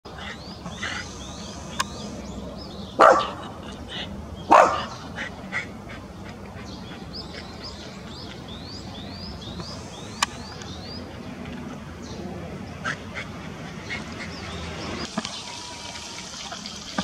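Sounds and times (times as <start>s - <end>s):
sharp click: 1.8s - 2.0s
loud harsh call or bark: 3.0s - 3.4s, 4.5s - 5.0s.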